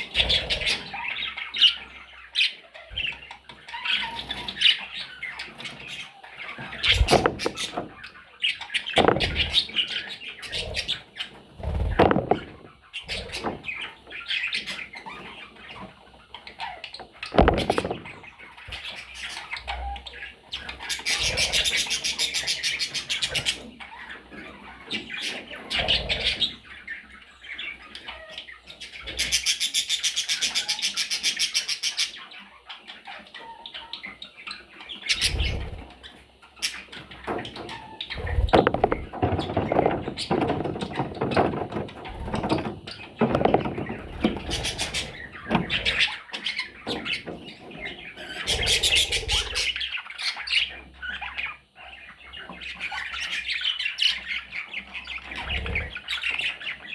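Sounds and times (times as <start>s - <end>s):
parrots chirping and squawking: 0.0s - 56.9s
wings fluttering: 6.6s - 8.0s, 9.0s - 9.8s, 10.5s - 13.9s, 17.2s - 18.9s, 37.3s - 46.2s
dull thumps: 6.9s - 8.0s, 9.0s - 9.6s, 11.6s - 12.7s, 17.3s - 18.2s, 38.1s - 46.0s.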